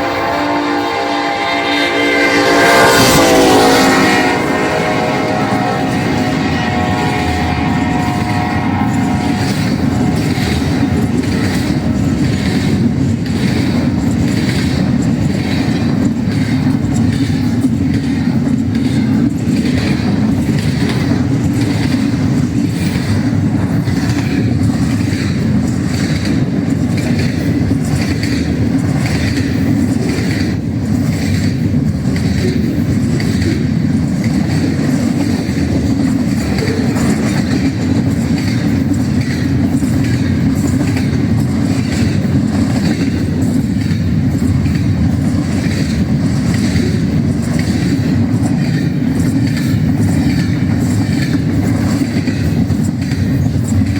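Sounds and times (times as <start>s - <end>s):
freight train rumbling: 0.0s - 53.9s
wheels clacking over rail joints: 2.8s - 53.9s.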